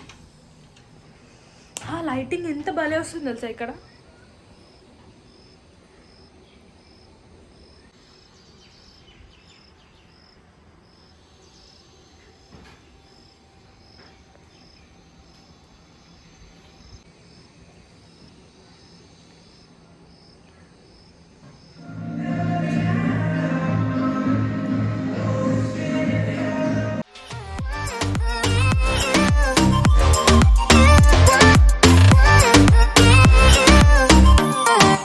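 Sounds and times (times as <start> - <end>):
faint outdoor background noise: 0.0 - 28.4
insect chirping: 3.8 - 12.4.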